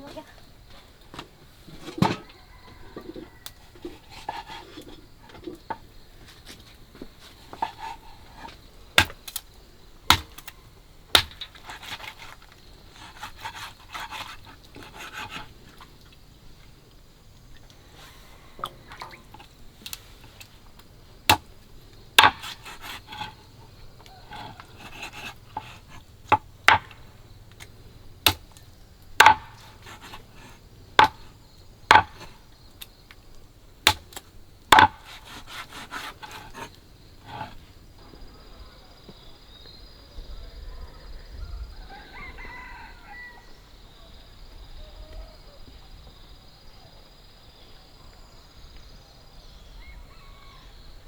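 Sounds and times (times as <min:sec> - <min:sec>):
sharp knocks: 0:29.2 - 0:29.6, 0:31.9 - 0:32.3, 0:34.7 - 0:35.0.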